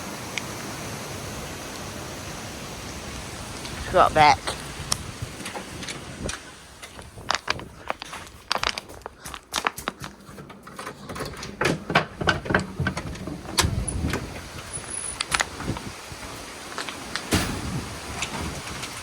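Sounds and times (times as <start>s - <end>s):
knocks clicks and rattles of handling: 5.4s - 15.9s.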